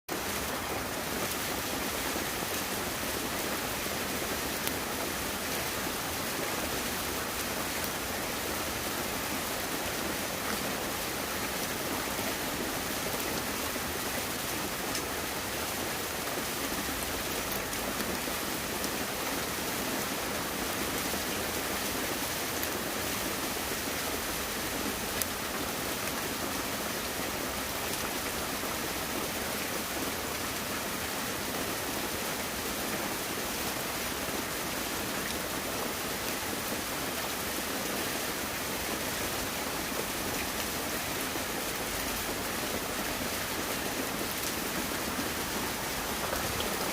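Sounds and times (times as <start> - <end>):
water rushing: 38.5 - 46.9.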